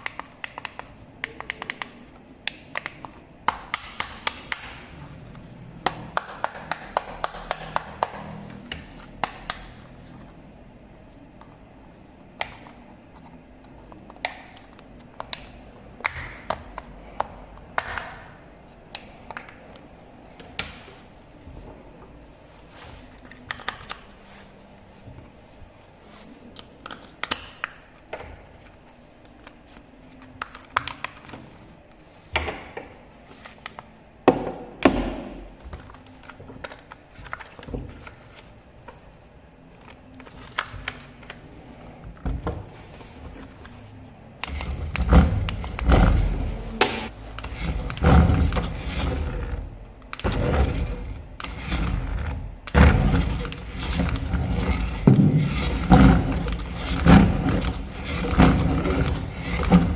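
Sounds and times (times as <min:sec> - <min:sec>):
low uneven rumbling: 0:44.6 - 0:59.9.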